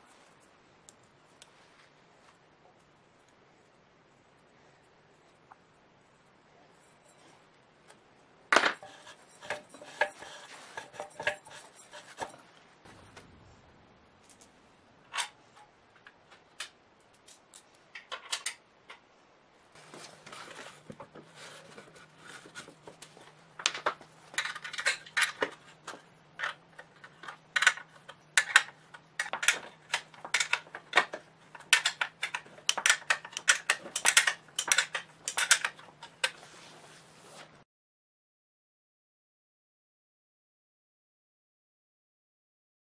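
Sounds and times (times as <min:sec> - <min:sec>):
faint low hum: 0:00.0 - 0:37.6
metal tools clinking: 0:08.7 - 0:12.4, 0:24.3 - 0:36.3.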